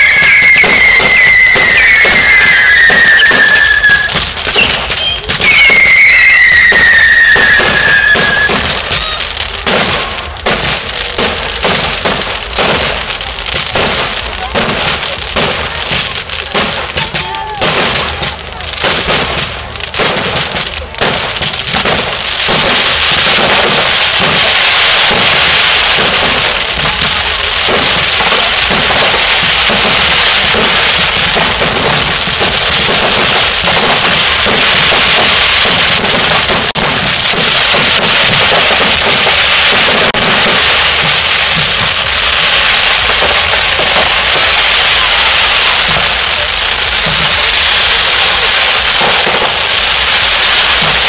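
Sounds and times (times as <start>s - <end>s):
fireworks bangs and crackles: 0.0s - 51.0s.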